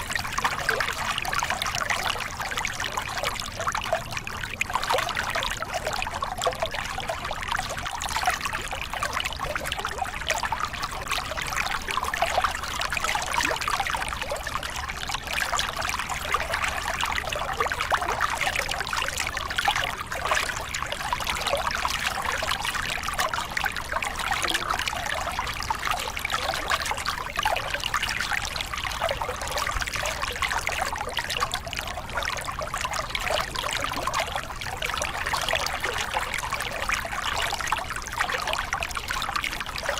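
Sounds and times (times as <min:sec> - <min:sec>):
water splashing over rocks: 0:00.0 - 0:39.9.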